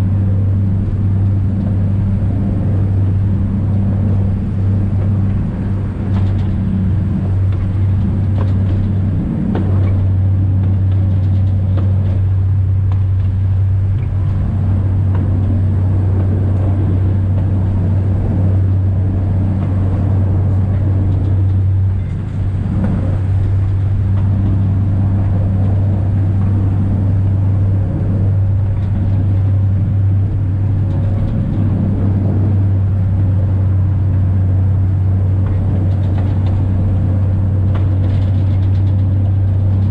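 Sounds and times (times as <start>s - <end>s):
diesel train engine drone: 0.0s - 39.9s
wheels rattling on track: 0.0s - 39.9s.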